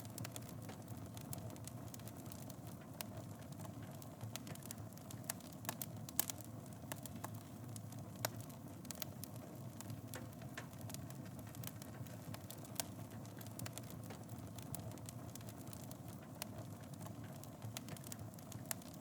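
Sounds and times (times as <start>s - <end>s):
burning wood crackles and pops: 0.0s - 19.0s
low rumble of flames: 0.0s - 19.0s.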